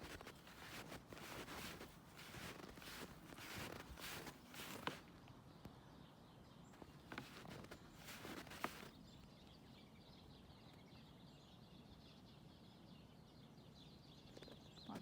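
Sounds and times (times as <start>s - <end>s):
footsteps crunching in snow: 0.0s - 5.1s, 7.1s - 8.9s.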